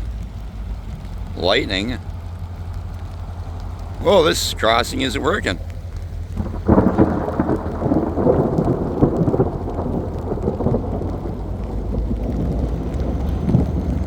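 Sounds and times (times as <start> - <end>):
rain falling: 0.0 - 14.0
thunder rumbling: 0.0 - 14.0.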